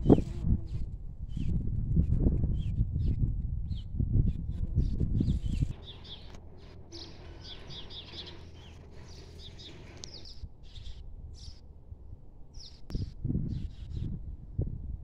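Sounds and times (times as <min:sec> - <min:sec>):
low background rumble: 0:00.0 - 0:15.0
small birds chirping: 0:02.5 - 0:11.7.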